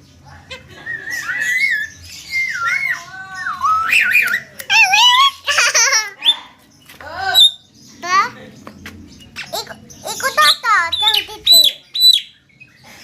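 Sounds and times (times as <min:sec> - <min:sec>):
bird whistling: 0:00.9 - 0:05.3, 0:10.4 - 0:12.4
bird chattering: 0:09.1 - 0:12.9.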